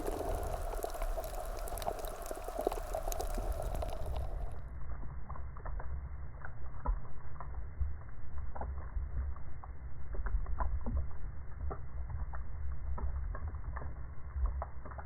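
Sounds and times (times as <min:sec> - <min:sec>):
water splashing: 0:00.0 - 0:04.6
low underwater rumble: 0:00.0 - 0:05.4
underwater clicks and crackles: 0:00.0 - 0:15.0.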